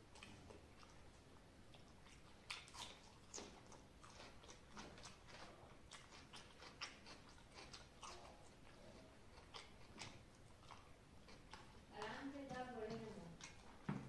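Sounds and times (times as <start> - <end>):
man chewing food: 0.0 - 14.0
wet mouth clicks and smacks: 1.8 - 5.2, 9.4 - 11.8, 13.4 - 13.8.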